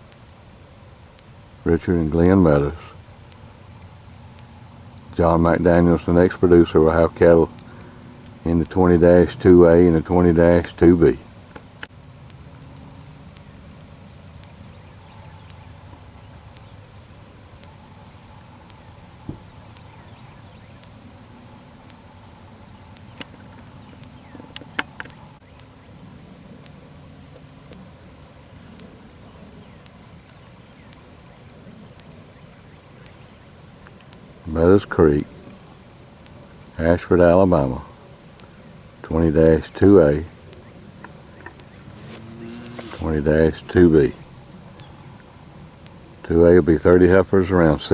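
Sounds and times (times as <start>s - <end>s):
insects buzzing: 0.0s - 47.9s.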